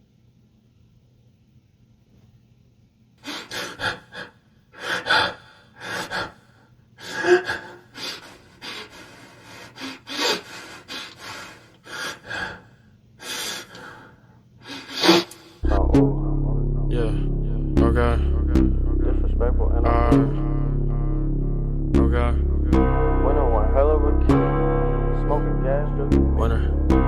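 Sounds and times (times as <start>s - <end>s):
person gasping and exhaling: 3.2s - 15.6s.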